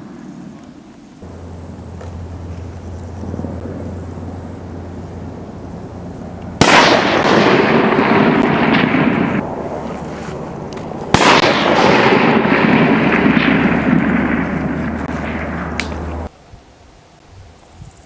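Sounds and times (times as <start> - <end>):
long rolling gunshot echo: 1.2 - 16.3
rifle shot crack: 6.4 - 16.3.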